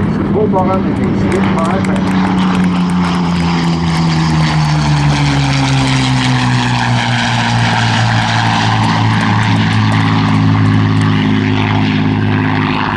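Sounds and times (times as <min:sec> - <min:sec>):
aircraft engines flypast: 0:00.0 - 0:12.9.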